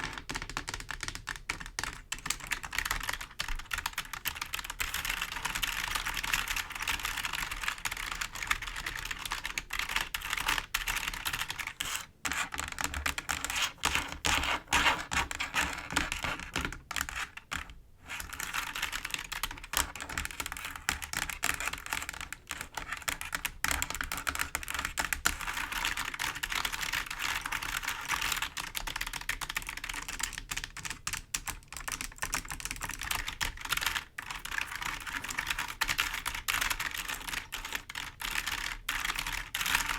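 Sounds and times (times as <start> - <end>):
fingers tapping keyboard keys: 0.0 - 39.9.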